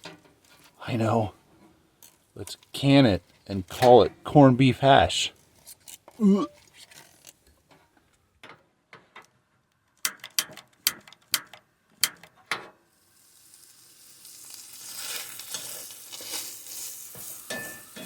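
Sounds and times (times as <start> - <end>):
food sizzling in a frying pan: 12.9 - 18.0.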